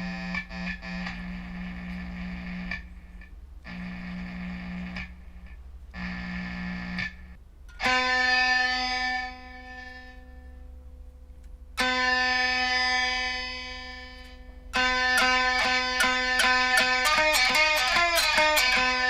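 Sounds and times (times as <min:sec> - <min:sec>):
amplified single-string plucks: 0:14.8 - 0:19.0.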